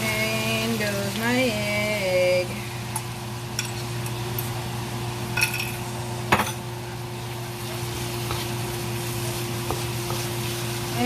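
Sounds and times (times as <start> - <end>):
steady low hum: 0.0 - 11.0
egg sizzling in oil: 7.4 - 11.0.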